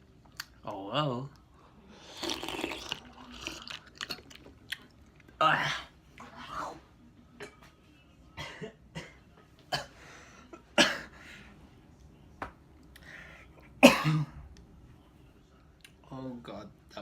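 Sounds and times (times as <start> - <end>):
man coughing: 8.4 - 10.0, 10.7 - 11.2, 13.8 - 14.4.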